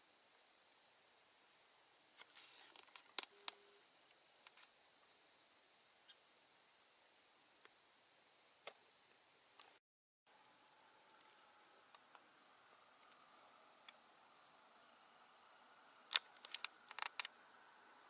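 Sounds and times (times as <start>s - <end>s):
faint high-pitched hiss: 0.0s - 18.0s
small clicks: 16.1s - 17.4s.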